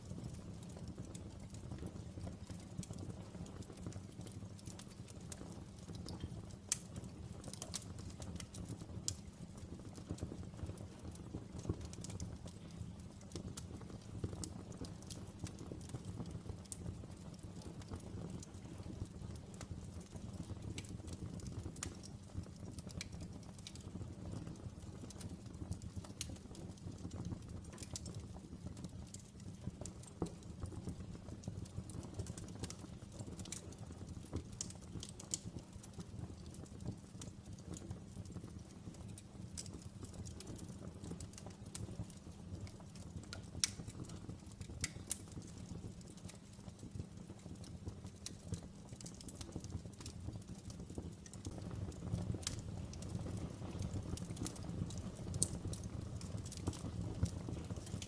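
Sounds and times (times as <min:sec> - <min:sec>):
open fire crackling and popping: 0:00.0 - 0:58.0.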